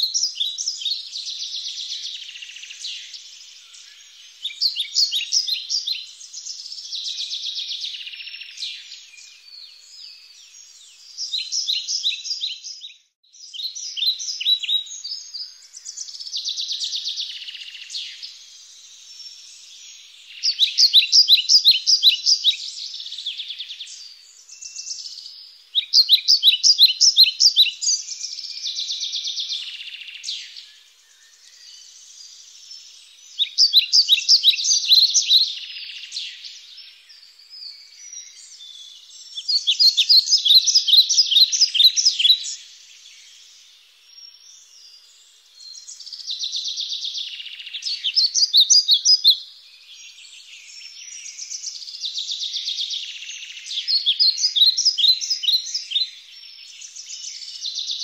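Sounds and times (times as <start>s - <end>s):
small birds twittering: 0.0s - 58.0s
songbird singing: 0.0s - 58.0s.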